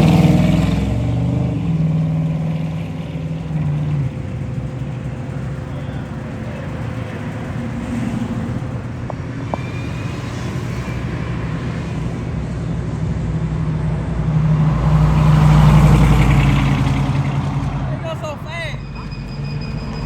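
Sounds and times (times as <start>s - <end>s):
vehicle engine running: 0.0s - 9.6s.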